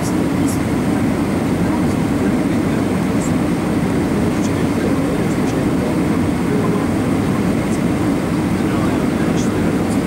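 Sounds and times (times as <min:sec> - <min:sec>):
aircraft cabin engine roar: 0:00.0 - 0:10.0.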